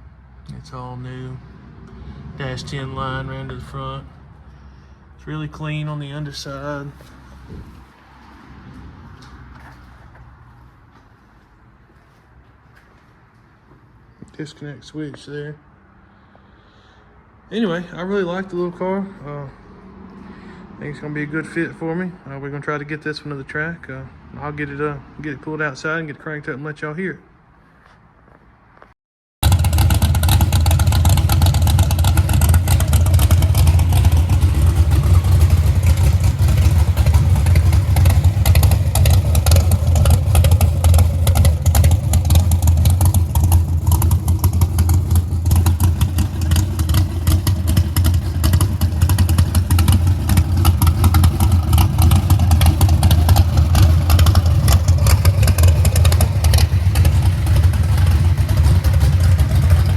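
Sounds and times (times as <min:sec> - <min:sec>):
loud race car engine running: 0:29.4 - 0:59.9.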